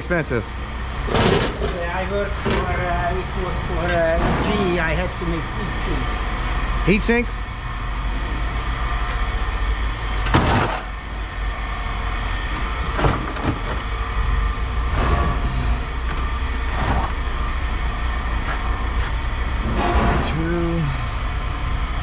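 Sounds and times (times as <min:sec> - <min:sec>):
low machine hum: 0:00.0 - 0:22.0
scrap metal clanking: 0:10.2 - 0:11.0, 0:12.6 - 0:14.0, 0:16.6 - 0:17.6.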